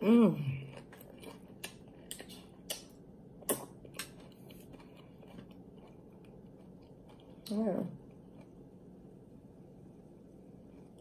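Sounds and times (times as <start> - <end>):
chewing crunchy chips: 0.4 - 8.7.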